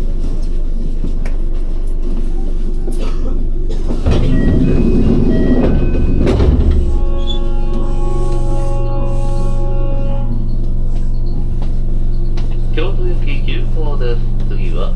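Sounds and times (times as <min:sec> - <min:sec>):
electric train rumbling: 0:00.0 - 0:14.9
rail clicks: 0:03.7 - 0:08.6
high whining tones: 0:04.0 - 0:14.3.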